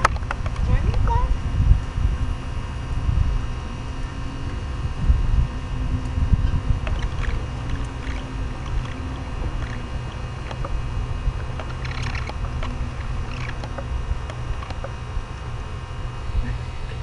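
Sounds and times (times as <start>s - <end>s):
wind rumble on microphone: 0.0s - 17.0s
macaws cracking nut shells: 6.8s - 10.8s, 11.4s - 15.0s.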